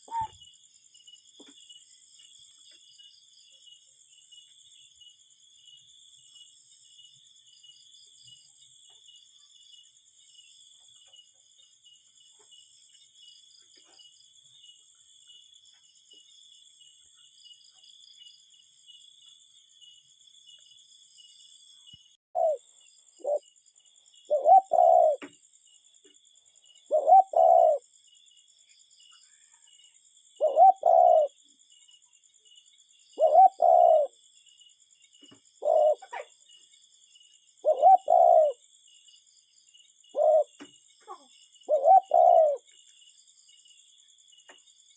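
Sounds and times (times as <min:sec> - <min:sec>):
cuckoo calling: 0:00.0 - 0:00.4, 0:22.4 - 0:22.6, 0:23.2 - 0:23.4, 0:24.3 - 0:25.3, 0:26.9 - 0:27.8, 0:30.4 - 0:31.4, 0:33.2 - 0:34.1, 0:35.6 - 0:36.3, 0:37.6 - 0:38.6, 0:40.2 - 0:42.7
crickets trilling: 0:00.0 - 0:44.9.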